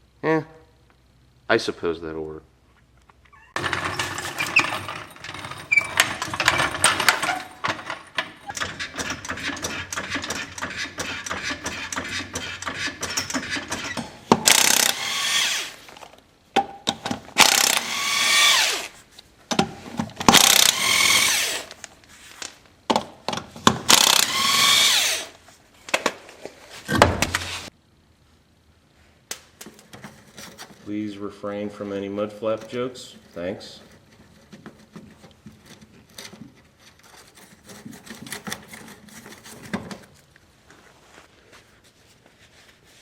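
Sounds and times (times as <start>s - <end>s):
power tool driving fasteners: 3.6s - 15.8s, 17.4s - 18.9s, 20.2s - 21.9s, 23.6s - 25.4s.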